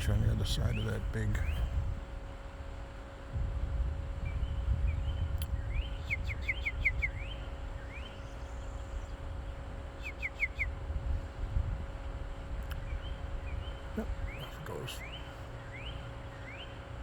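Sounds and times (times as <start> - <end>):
steady low rumble: 0.0 - 17.0
songbird whistled notes: 4.2 - 9.2, 9.9 - 10.8, 12.7 - 16.8.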